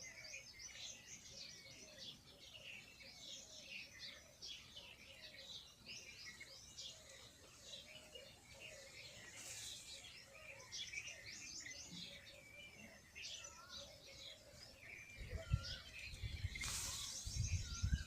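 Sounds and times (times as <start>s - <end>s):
small birds chirping: 0.0s - 18.0s
brief hiss: 16.5s - 17.6s.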